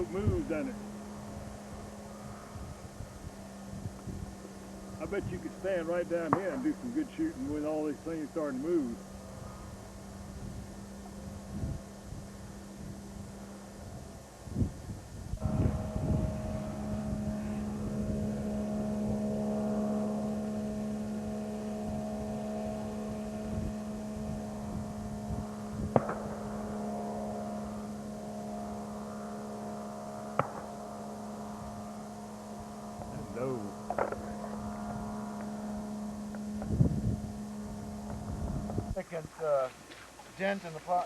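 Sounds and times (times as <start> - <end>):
boat engine running: 0.0 - 14.4, 15.1 - 41.0
sharp cracks: 6.2 - 7.1, 25.9 - 26.8, 30.3 - 30.8, 33.8 - 34.6.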